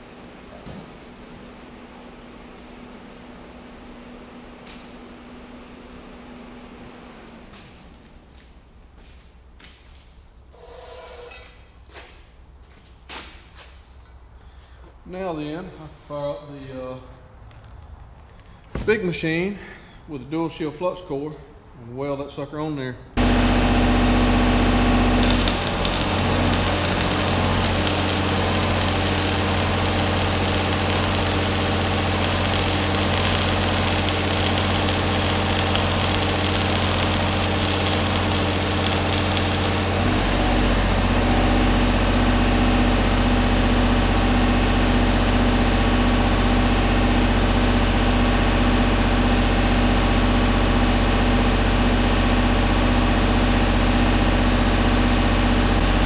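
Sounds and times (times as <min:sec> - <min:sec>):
welding arc crackle: 0:23.2 - 0:41.2
welding machine engine running: 0:23.2 - 0:56.0.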